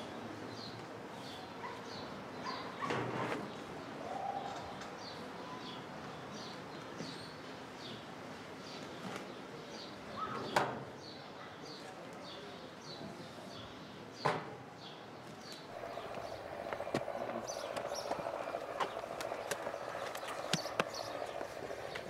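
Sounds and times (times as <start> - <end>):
small bird chirping: 15.5 - 22.0.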